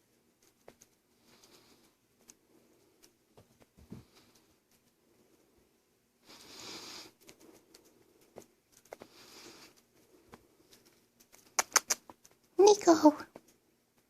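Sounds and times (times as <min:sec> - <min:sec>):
short rustling hisses: 0:06.2 - 0:08.3
small animal chewing clicks: 0:10.6 - 0:12.6.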